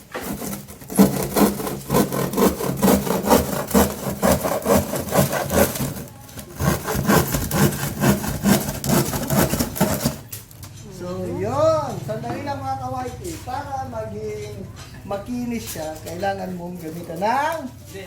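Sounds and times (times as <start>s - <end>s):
hand saw cutting plywood: 0.0s - 10.4s.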